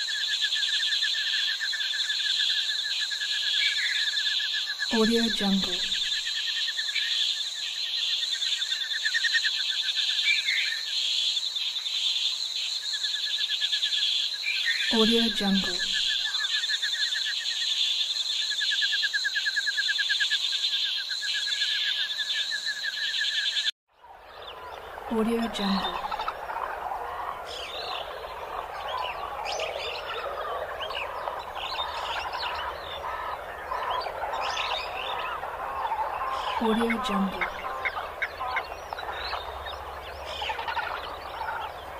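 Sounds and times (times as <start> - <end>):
insects chirping: 0.0 - 41.9
dense background chorus: 24.1 - 41.9
short bird calls: 24.4 - 41.9.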